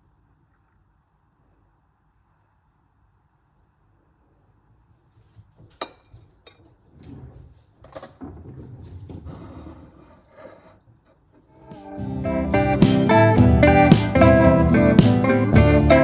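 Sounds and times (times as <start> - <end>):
sharp knocks and clinks: 5.7 - 6.8.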